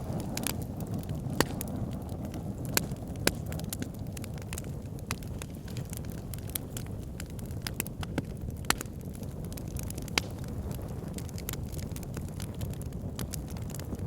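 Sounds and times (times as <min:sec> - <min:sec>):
fire pit crackling and popping: 0:00.0 - 0:14.0.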